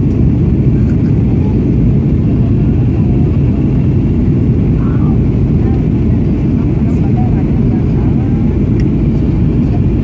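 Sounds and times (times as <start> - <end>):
airplane in flight rumble: 0.0 - 10.0.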